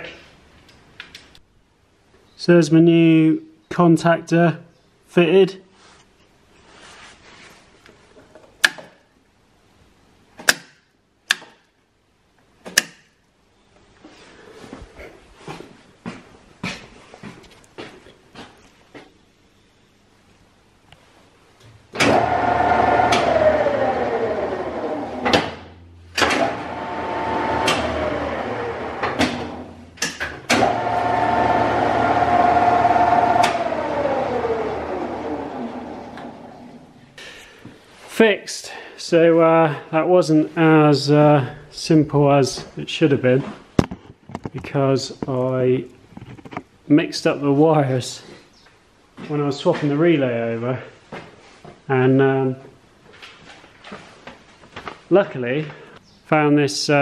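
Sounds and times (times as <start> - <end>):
faint rustling: 5.7 - 8.2
lathe motor whine: 22.0 - 29.9, 30.5 - 37.1
contactor clunks: 22.0 - 36.8.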